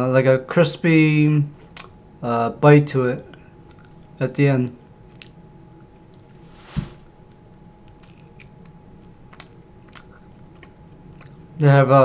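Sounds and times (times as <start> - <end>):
chewing crispy crust: 4.8 - 12.0.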